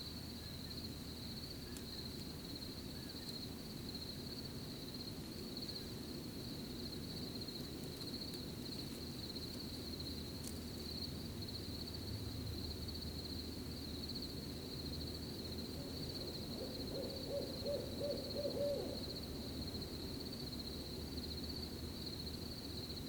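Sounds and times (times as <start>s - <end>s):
crickets chirping: 0.0s - 23.0s
owl hooting: 15.8s - 19.2s.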